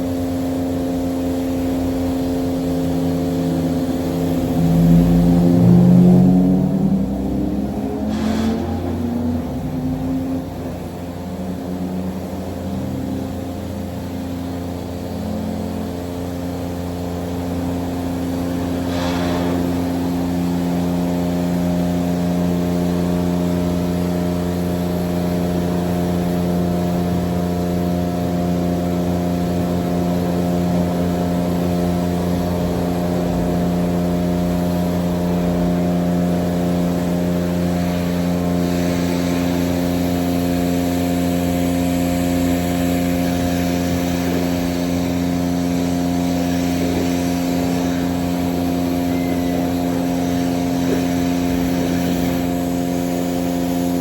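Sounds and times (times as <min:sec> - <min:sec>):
car wash machine hum: 0:00.0 - 0:54.0
water spraying hiss: 0:00.0 - 0:54.0.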